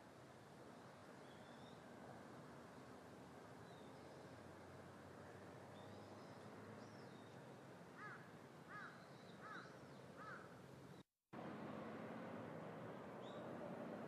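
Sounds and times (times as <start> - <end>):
faint steady background noise: 0.0 - 14.0
small birds chirping: 0.8 - 1.8, 3.6 - 4.4, 5.7 - 11.0, 13.2 - 13.5.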